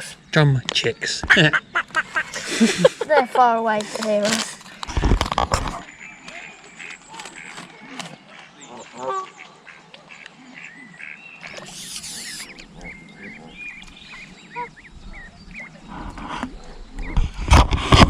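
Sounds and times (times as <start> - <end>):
small birds chirping: 0.0 - 17.6
brief hiss: 11.5 - 12.5.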